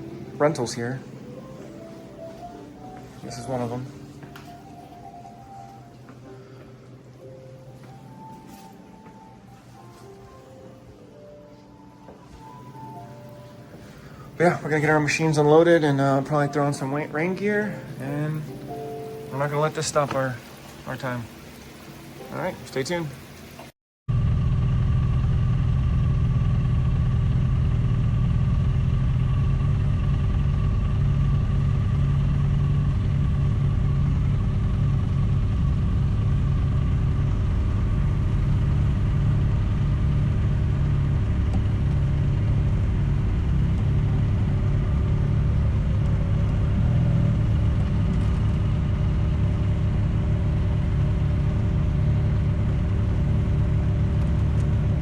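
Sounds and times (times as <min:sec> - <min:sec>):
vehicle engine running: 0:24.1 - 0:55.0.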